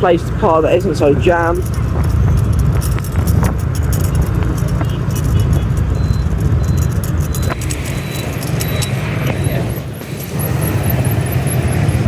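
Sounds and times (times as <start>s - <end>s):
motorbike engine and wind rumble: 0.0s - 12.0s
clicks: 1.6s - 10.5s
short high beeps: 5.9s - 10.7s.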